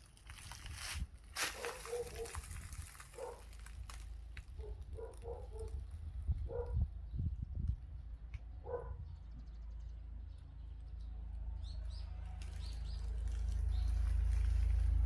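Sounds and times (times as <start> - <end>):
low rumble: 2.1 - 15.0
small birds chirping: 4.5 - 15.0.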